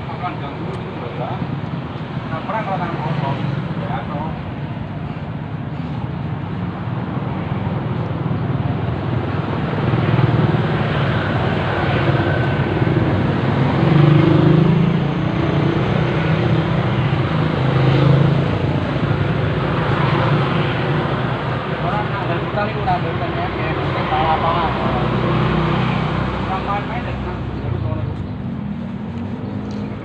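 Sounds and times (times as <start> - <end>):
traffic rumble: 0.0 - 30.0.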